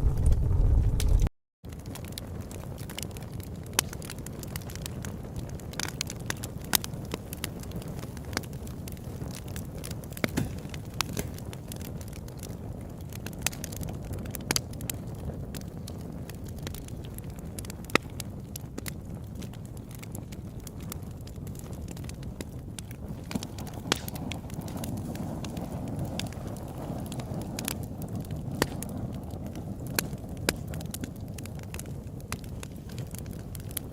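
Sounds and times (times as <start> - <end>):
low rumble: 0.0 - 1.3
fire crackling and popping: 0.0 - 33.9.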